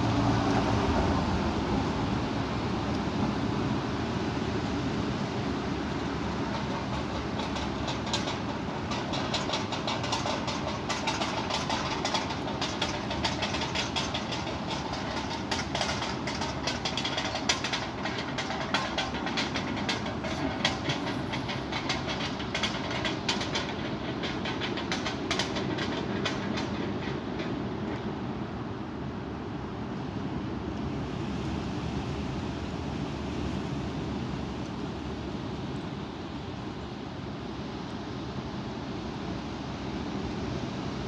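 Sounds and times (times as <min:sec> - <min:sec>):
sharp clicks and rattles: 0:06.0 - 0:28.4.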